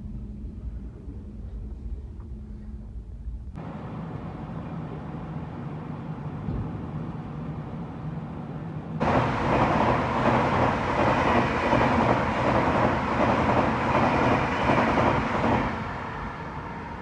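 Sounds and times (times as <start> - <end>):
train wheels rushing on rail: 3.6 - 17.0.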